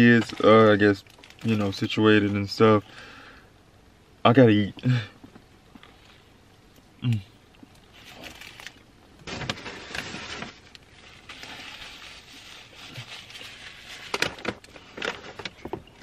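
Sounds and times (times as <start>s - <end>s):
paper bag rustling and crinkling: 0.0s - 2.0s, 7.9s - 16.0s
sharp paper crackles: 0.0s - 2.0s, 8.0s - 15.8s.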